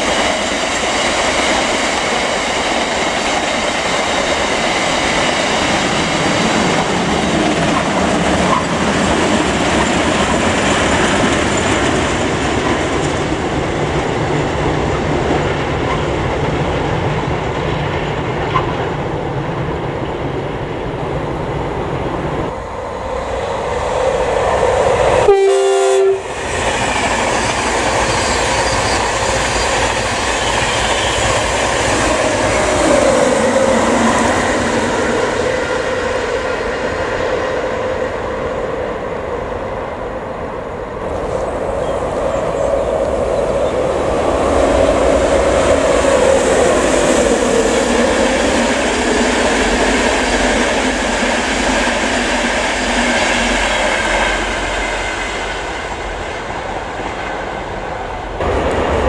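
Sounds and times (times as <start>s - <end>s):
electric locomotive passing: 0.0s - 59.0s
freight train rumbling and clattering: 0.0s - 59.0s
train horn blast: 25.2s - 26.3s.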